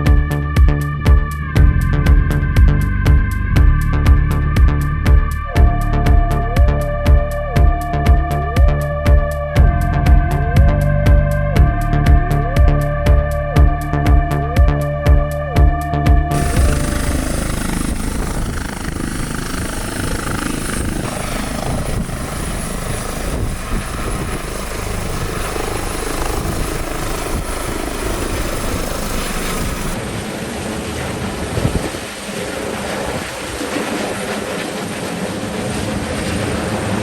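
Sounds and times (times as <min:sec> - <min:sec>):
helicopter rotor and turbine: 0:16.3 - 0:37.0.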